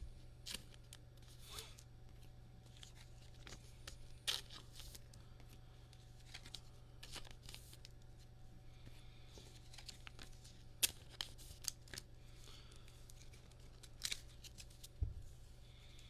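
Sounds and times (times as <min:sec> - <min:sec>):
steady low hum: 0:00.0 - 0:16.0
plastic sleeves rustling: 0:09.3 - 0:16.0.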